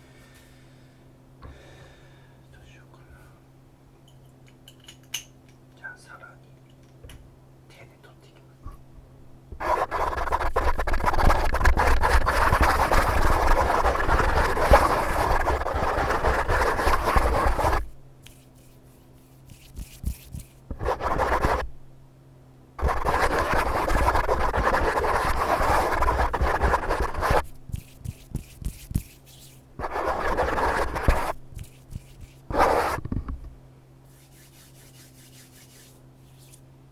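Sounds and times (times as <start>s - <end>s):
close-miked scratching: 9.5s - 21.8s, 22.8s - 36.6s.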